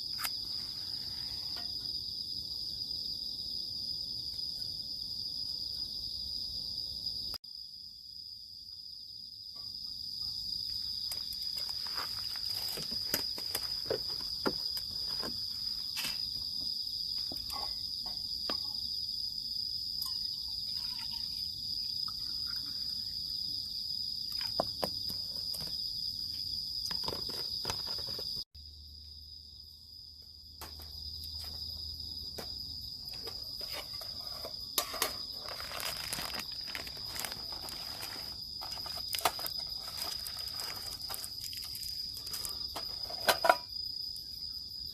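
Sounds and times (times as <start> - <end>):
crickets and insects chirping: 0.0 - 44.9
clicks and rustling of handling: 34.8 - 41.3.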